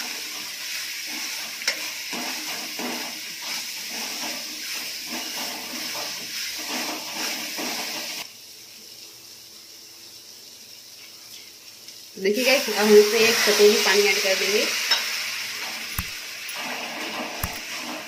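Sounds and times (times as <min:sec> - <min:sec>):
prawns sizzling in a pan: 0:00.0 - 0:18.0.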